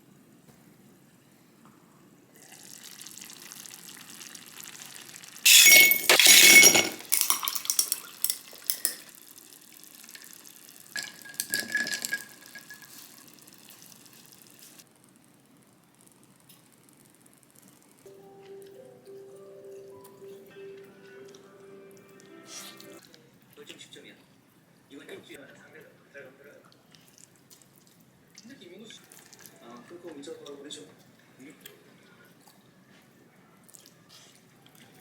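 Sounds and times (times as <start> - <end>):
water running: 2.4 - 14.8
glass and dishes clinking: 5.5 - 9.1, 11.0 - 13.0.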